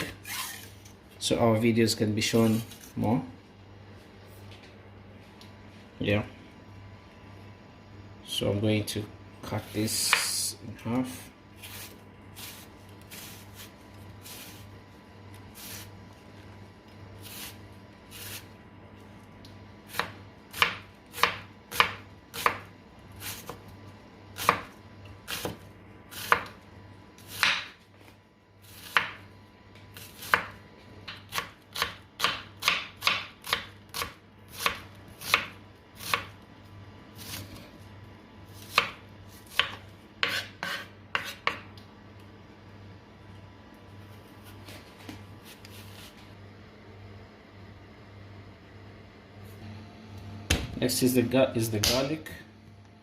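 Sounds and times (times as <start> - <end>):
knife chopping on cutting board: 19.9 - 22.7, 26.2 - 26.6, 27.3 - 27.8, 28.8 - 29.2, 30.0 - 36.3, 38.6 - 41.7.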